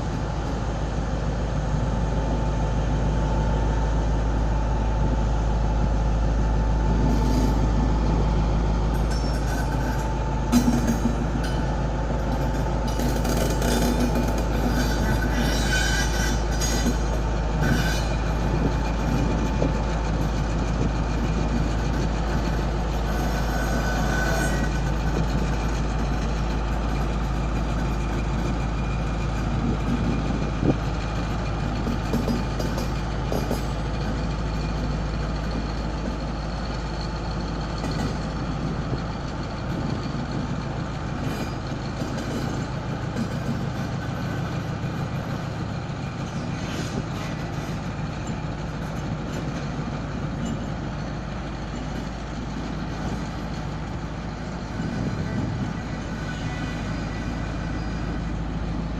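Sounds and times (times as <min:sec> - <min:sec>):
diesel locomotive engine rumble: 0:00.0 - 0:58.9
metallic squeals: 0:07.0 - 0:07.8, 0:08.9 - 0:20.4, 0:22.0 - 0:25.4, 0:41.2 - 0:49.6, 0:54.2 - 0:58.4.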